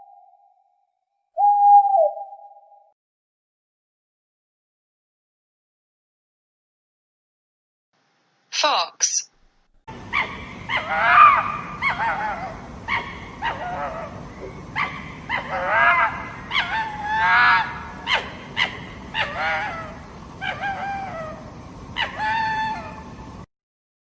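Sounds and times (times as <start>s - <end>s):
fox barking and yipping: 10.0s - 21.4s, 22.0s - 23.0s.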